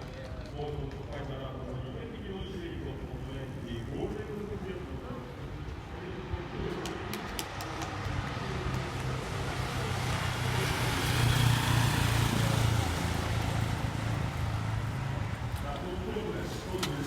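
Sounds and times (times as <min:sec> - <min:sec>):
motorcycle passing: 0:07.0 - 0:17.0.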